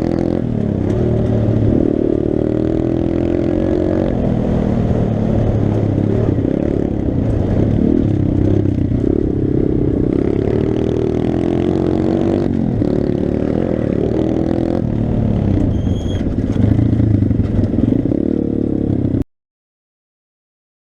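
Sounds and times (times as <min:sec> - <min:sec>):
motorbike engine revving: 0:00.0 - 0:19.2
brief high-pitched squeal: 0:15.7 - 0:16.3.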